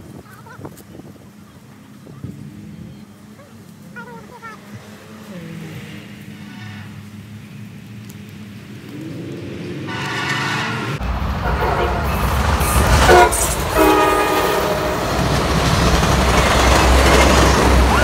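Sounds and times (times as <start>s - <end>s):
train rumbling: 0.0s - 18.0s
locomotive air horn blasts: 9.9s - 15.3s.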